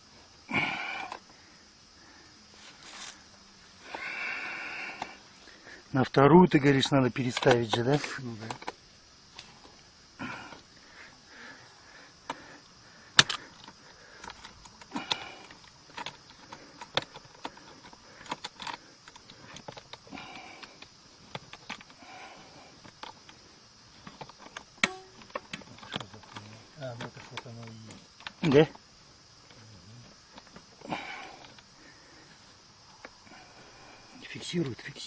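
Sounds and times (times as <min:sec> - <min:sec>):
soft rustling: 0:02.5 - 0:03.8.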